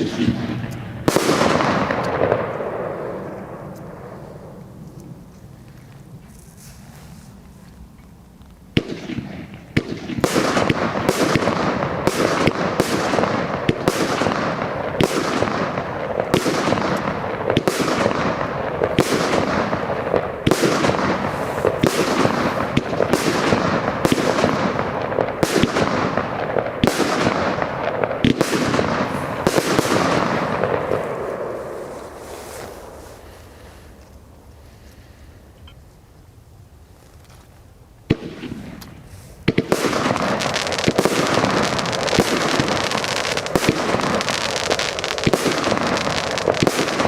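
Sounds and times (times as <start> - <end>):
firework barrage shots: 0.0 - 4.6, 8.7 - 33.8, 38.1 - 47.0
firework crackling: 0.0 - 7.8, 8.5 - 35.2, 38.1 - 47.0.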